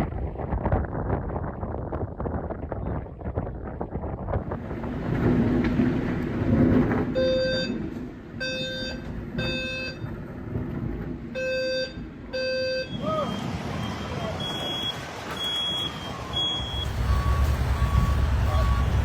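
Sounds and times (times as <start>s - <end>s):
wind and rain rushing: 0.0s - 12.3s, 13.0s - 19.0s
electronic alarm beeping: 7.2s - 7.8s, 8.4s - 10.1s, 11.4s - 19.0s.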